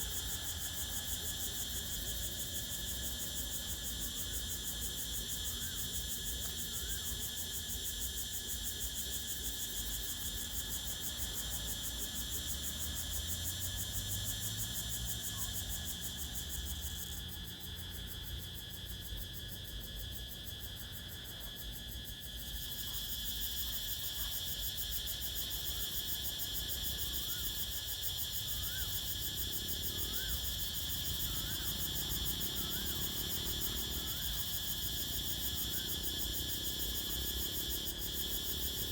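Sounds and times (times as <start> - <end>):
crickets and insects trilling: 0.0 - 38.9.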